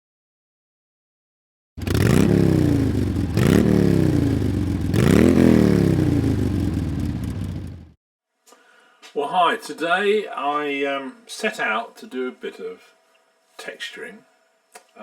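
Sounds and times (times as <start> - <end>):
engine revving: 1.8 - 8.0.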